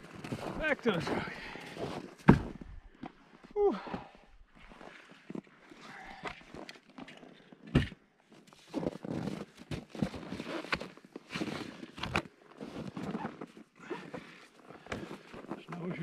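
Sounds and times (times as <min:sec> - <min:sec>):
snowshoe footsteps in snow: 0:00.0 - 0:02.2.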